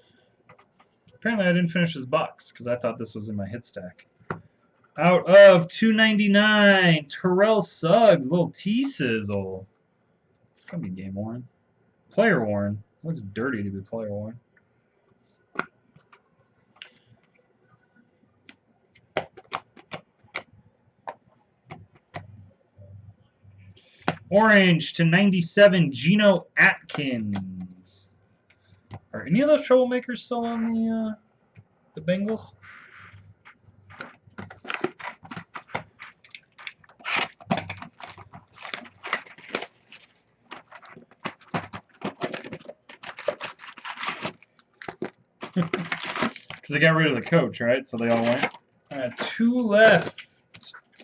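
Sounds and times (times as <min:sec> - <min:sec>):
cards being handled: 0:18.5 - 0:20.5, 0:21.1 - 0:22.4, 0:32.3 - 0:51.0
trading cards and plastic holders clicking: 0:34.0 - 0:39.7
foil wrappers tearing and crinkling: 0:34.0 - 0:46.8, 0:48.0 - 0:51.0.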